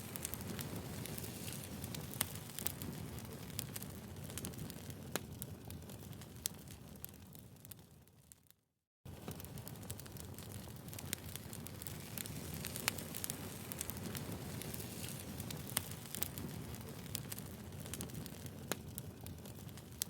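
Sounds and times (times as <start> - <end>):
low rush of flames: 0.0 - 7.8, 9.1 - 20.0
firewood popping and snapping: 9.2 - 20.0.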